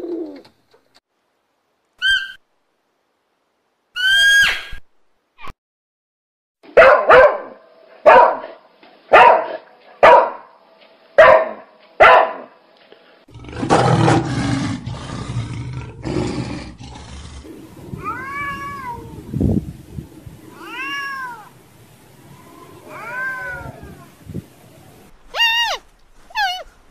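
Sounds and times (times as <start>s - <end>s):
low rough growl: 13.3s - 20.5s
cat meowing: 18.0s - 19.3s, 20.5s - 21.5s, 22.4s - 24.2s, 25.3s - 26.7s.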